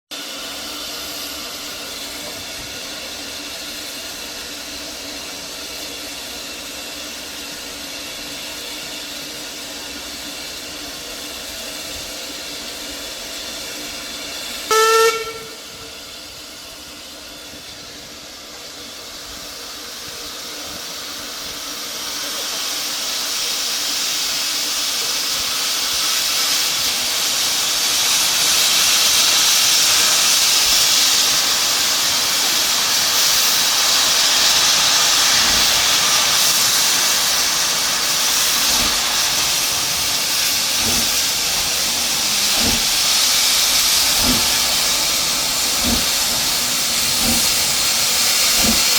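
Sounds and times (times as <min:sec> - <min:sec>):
steam locomotive hissing: 0:00.1 - 0:48.9
steam whistle blast: 0:14.6 - 0:16.1.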